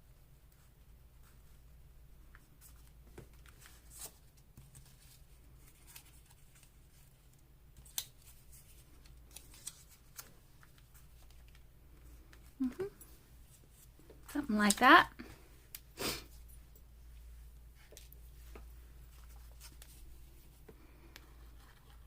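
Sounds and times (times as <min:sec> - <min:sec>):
low steady hum: 0:00.0 - 0:22.0
paper ticks and rustles: 0:02.3 - 0:12.4.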